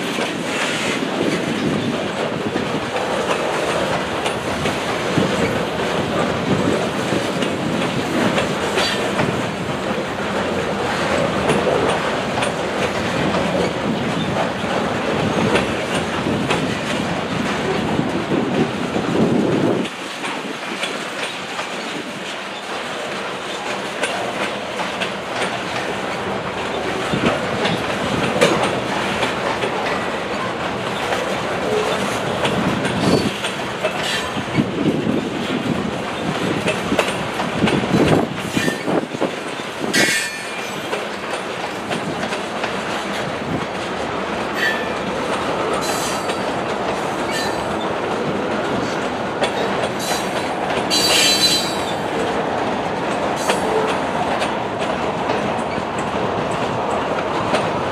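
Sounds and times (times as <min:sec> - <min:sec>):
train wheels clacking over rails: 0:00.0 - 0:57.9
metal wheel squeals: 0:50.9 - 0:52.0.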